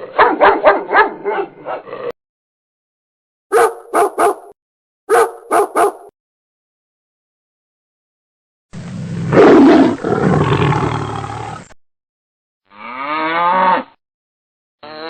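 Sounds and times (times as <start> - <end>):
big cat roaring: 8.8 - 11.7.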